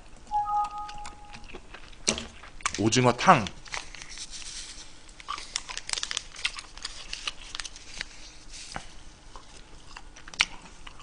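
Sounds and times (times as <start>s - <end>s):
person chewing and mouth smacking: 1.0s - 2.8s, 9.3s - 11.0s.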